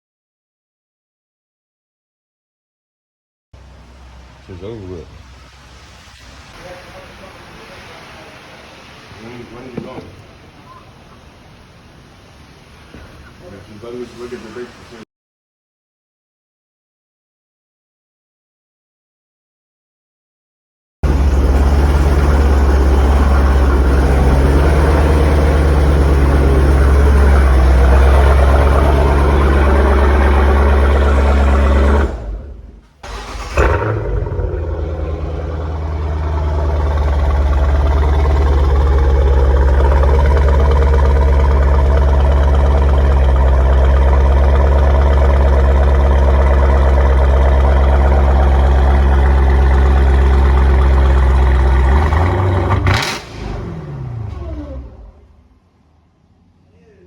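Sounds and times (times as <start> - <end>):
loud engine revving: 21.0 - 55.5.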